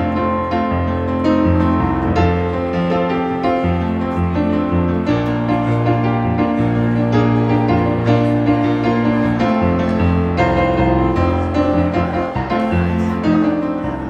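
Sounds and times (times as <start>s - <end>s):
keyboard chords over bass line: 0.0s - 14.0s.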